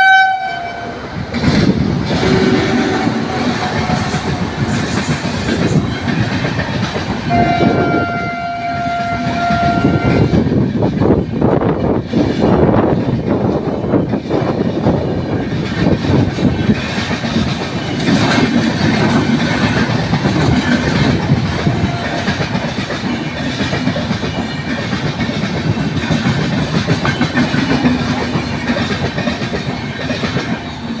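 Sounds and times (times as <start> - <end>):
train wheels rumbling on rails: 0.0 - 31.0
wheels clattering over rail joints: 11.8 - 31.0.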